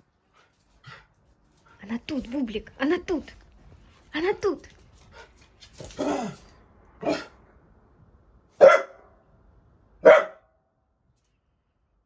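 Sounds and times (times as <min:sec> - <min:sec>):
dog barking: 0:07.0 - 0:07.4, 0:08.6 - 0:09.2, 0:10.0 - 0:10.5.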